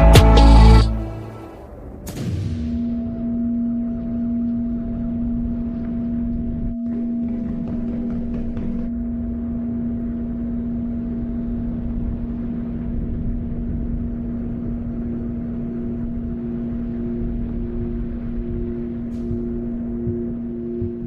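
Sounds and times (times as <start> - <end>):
low drone over rumble: 0.0 - 21.0
soft pulsing higher note: 2.7 - 21.0.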